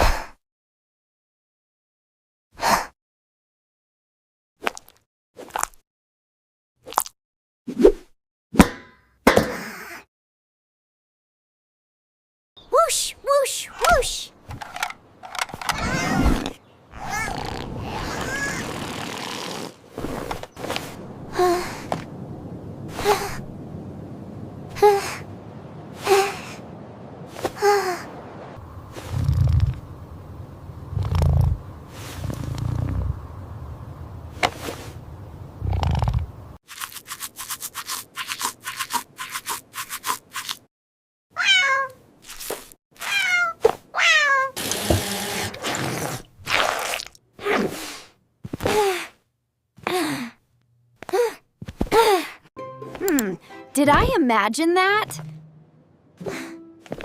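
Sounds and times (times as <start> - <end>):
cat meowing: 41.4 - 42.0, 43.0 - 44.6
cartoon voice gasping: 56.2 - 56.6.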